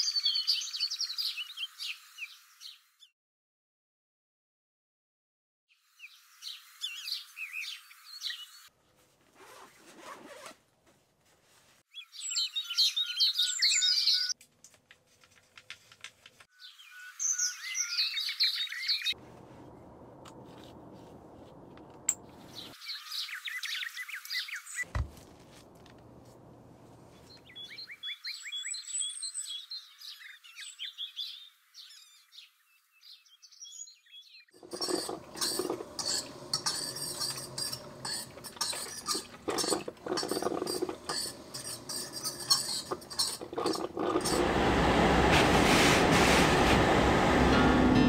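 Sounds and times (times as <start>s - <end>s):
birds chirping and twittering: 0.0s - 3.1s, 5.7s - 8.7s, 11.9s - 14.4s, 16.6s - 19.2s, 22.2s - 24.9s, 27.1s - 44.4s.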